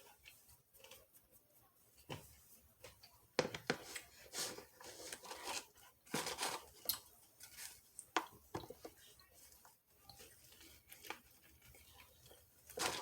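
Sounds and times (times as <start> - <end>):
food crunching and crackling: 5.1 - 8.4.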